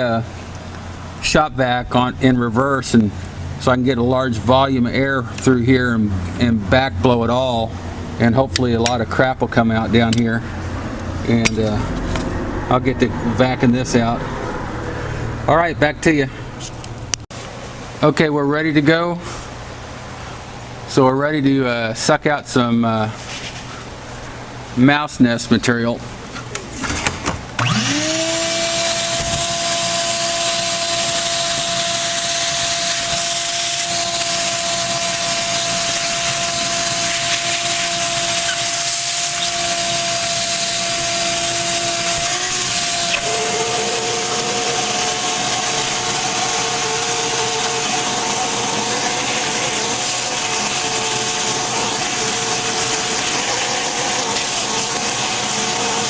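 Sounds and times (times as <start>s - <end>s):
shop vacuum motor whining: 27.6s - 56.0s.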